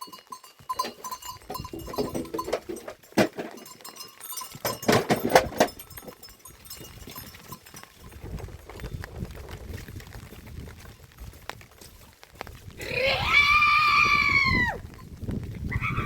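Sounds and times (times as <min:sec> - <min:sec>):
knocks and clicks: 0:04.6 - 0:06.2.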